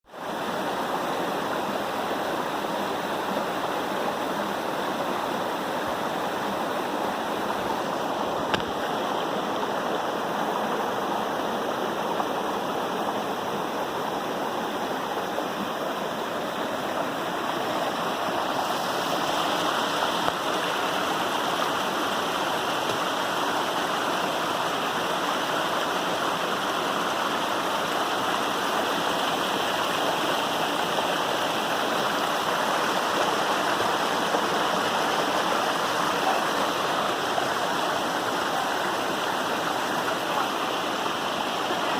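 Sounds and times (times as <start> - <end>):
waterfall rushing: 0.2 - 41.9.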